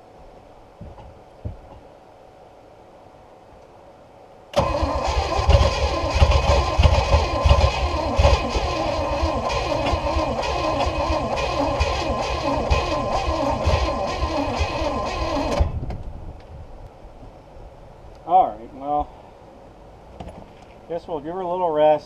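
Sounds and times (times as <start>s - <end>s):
boat engine cranking: 4.6s - 15.8s.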